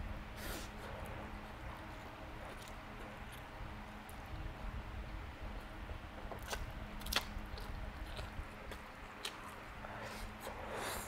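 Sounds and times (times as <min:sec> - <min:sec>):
person chewing noodles: 0:00.4 - 0:04.2, 0:06.2 - 0:11.0.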